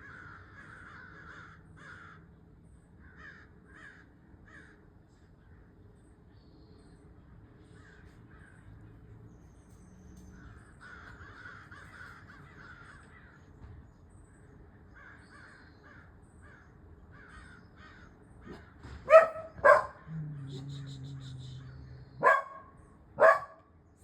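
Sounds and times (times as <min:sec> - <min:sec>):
birds harsh rough calls: 0:00.0 - 0:02.3, 0:03.0 - 0:05.6, 0:10.4 - 0:13.4, 0:15.0 - 0:23.6
high bird notes: 0:19.1 - 0:23.5.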